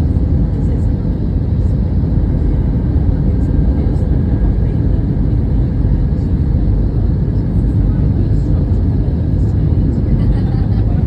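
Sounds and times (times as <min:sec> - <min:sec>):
aircraft cabin engine rumble: 0:00.0 - 0:11.0.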